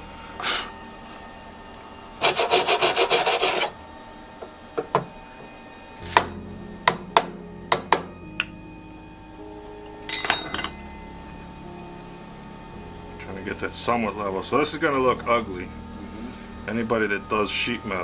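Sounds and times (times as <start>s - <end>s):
welder crackling and buzzing: 11.0s - 18.0s.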